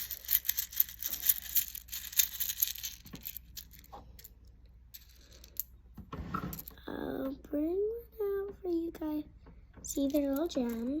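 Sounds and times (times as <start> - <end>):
small hard pieces clicking: 0.0 - 4.3.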